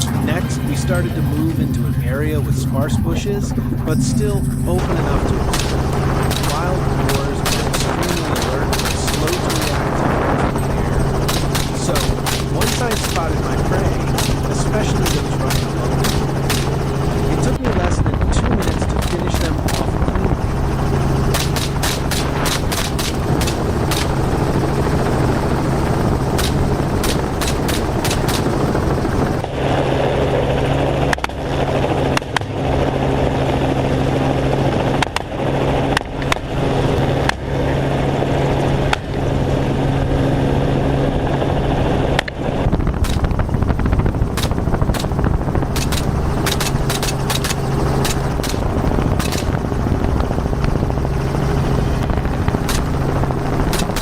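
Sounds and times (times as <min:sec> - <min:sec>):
helicopter engine and rotor drone: 0:00.0 - 0:54.0
rifle shots: 0:05.4 - 0:10.1, 0:11.2 - 0:17.5, 0:18.6 - 0:20.0, 0:21.3 - 0:24.4, 0:26.2 - 0:29.4, 0:43.0 - 0:43.4, 0:44.3 - 0:49.6, 0:52.6 - 0:53.0, 0:53.7 - 0:54.0.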